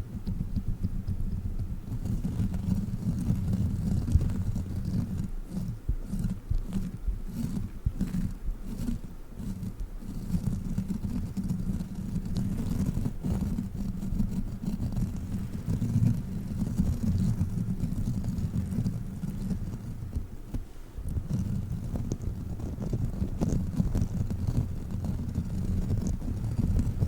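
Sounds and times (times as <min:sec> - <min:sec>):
faint crackles: 0:00.0 - 0:27.0
toy rumbling against microphone: 0:00.0 - 0:27.0.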